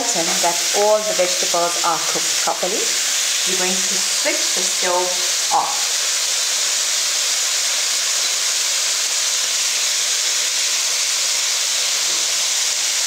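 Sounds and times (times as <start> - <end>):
stir-fry sizzling in a frying pan: 0.0 - 13.0.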